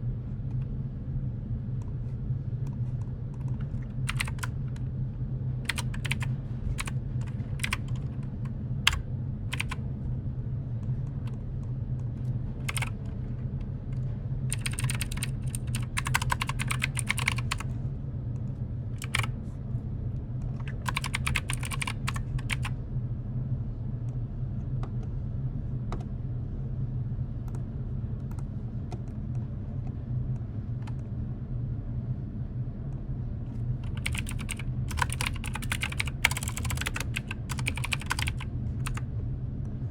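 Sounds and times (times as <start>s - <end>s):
low hum: 0.0s - 39.9s
keyboard typing: 3.4s - 4.8s, 5.7s - 8.3s, 8.9s - 9.8s, 12.7s - 13.1s, 14.5s - 17.6s, 19.0s - 19.3s, 20.6s - 22.7s, 33.8s - 39.0s.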